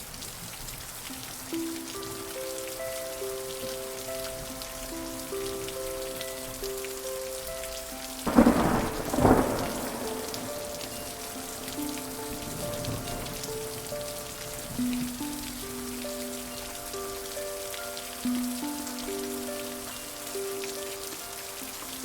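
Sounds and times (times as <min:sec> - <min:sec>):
soft slow music: 0:00.0 - 0:22.0
steady rain: 0:00.0 - 0:22.0
thunder cracks and rumble: 0:08.3 - 0:11.8.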